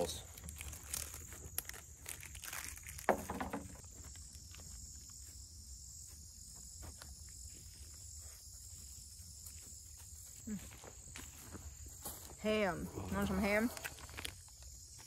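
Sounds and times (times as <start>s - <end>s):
rustling: 0.3s - 10.5s.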